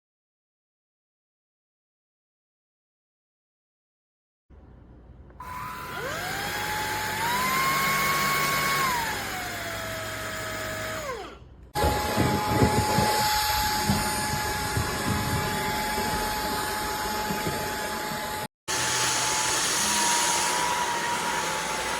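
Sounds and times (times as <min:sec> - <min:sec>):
vacuum motor whine: 0:05.4 - 0:21.9
rushing airflow hiss: 0:18.7 - 0:21.9.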